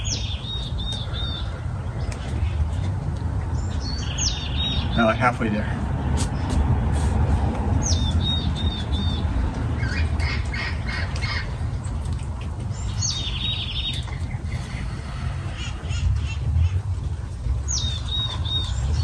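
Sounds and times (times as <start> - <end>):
bird chirping: 0.0 - 5.4, 12.6 - 16.8, 17.6 - 19.0
songbird singing: 0.0 - 6.6, 7.8 - 19.0
steady low rumble: 0.0 - 19.0.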